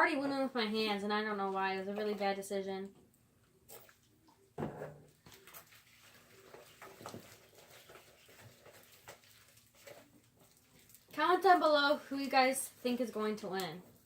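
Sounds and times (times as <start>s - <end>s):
slime squelching: 5.2s - 14.0s.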